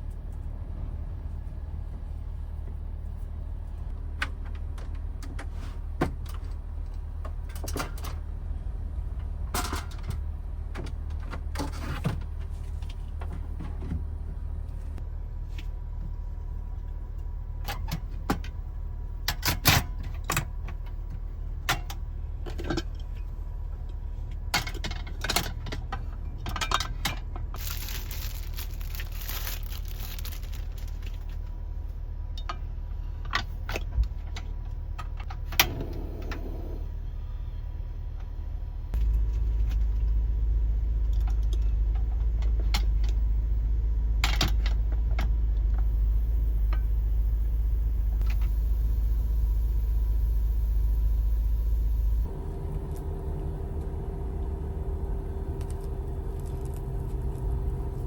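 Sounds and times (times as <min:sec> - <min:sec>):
steady low rumble: 0:00.0 - 0:05.2, 0:05.9 - 0:11.6, 0:12.2 - 0:58.0
small hard objects clinking: 0:27.6 - 0:31.3.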